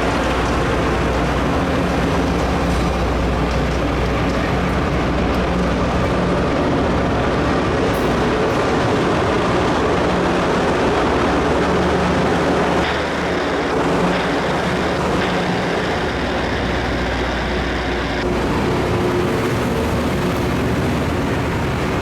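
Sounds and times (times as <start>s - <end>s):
diesel engines droning: 0.0s - 22.0s
rail grinder harsh grinding noise: 0.0s - 22.0s.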